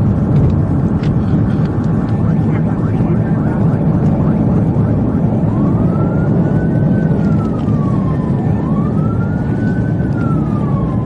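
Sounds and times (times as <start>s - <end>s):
engine and road noise rumble: 0.0s - 11.0s
police siren wailing: 0.1s - 11.0s.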